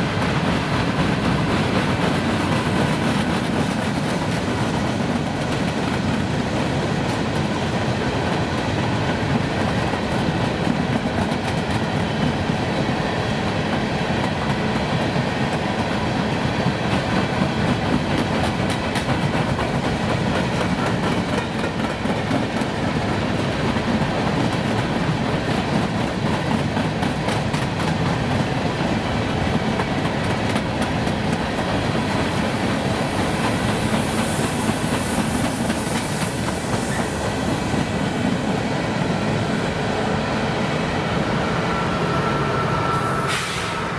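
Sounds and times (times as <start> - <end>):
train cars rumbling on track: 0.0 - 43.9
high hiss: 32.4 - 38.7, 41.9 - 43.9.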